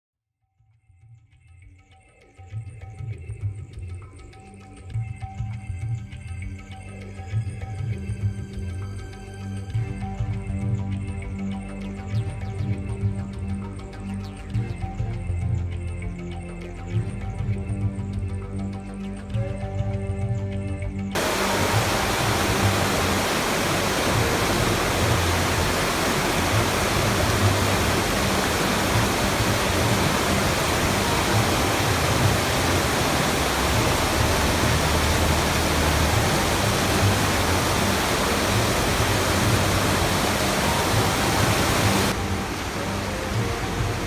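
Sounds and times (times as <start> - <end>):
water rushing: 21.2 - 44.0.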